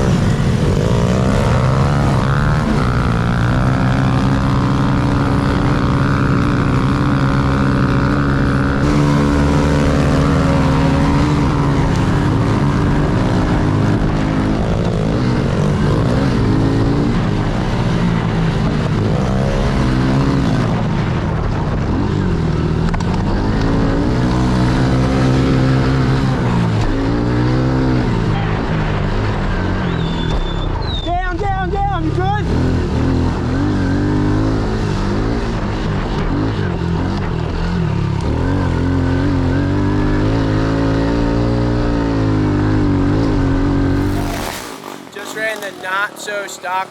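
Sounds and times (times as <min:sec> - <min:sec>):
pit bike engine revving: 0:00.0 - 0:20.6, 0:38.3 - 0:46.9.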